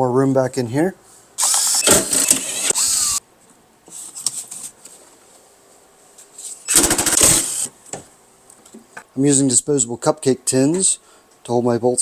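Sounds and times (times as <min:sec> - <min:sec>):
power tool running: 0:01.4 - 0:03.2, 0:06.7 - 0:07.7.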